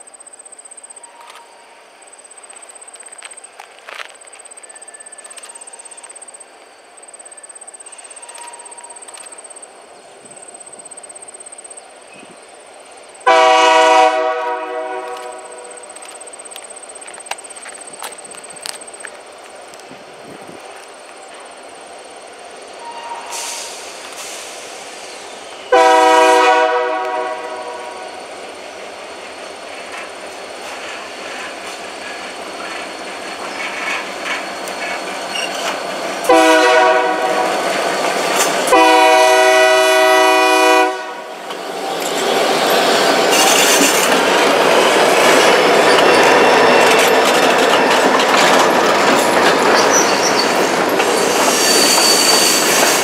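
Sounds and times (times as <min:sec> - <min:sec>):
locomotive chime horn: 0:13.3 - 0:16.0, 0:25.7 - 0:28.1, 0:36.3 - 0:37.6, 0:38.7 - 0:41.4.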